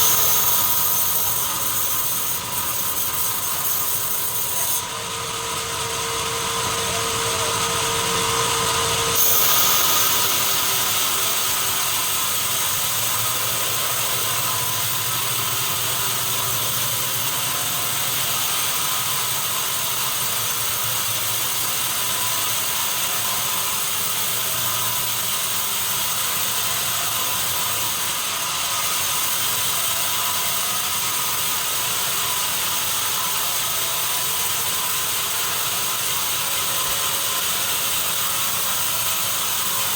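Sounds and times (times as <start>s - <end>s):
sawmill machinery rattling: 0.0s - 20.9s.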